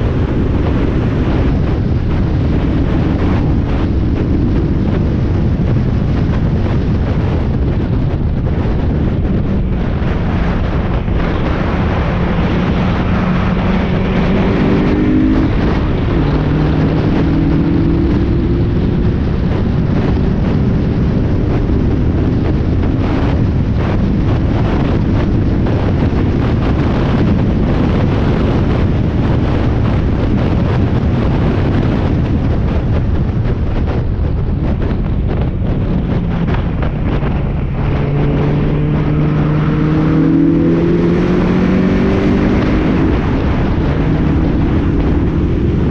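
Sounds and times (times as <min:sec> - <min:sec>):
wind rush on microphone: 0:00.0 - 0:45.9
racing engine accelerating: 0:08.6 - 0:22.3, 0:36.1 - 0:45.9.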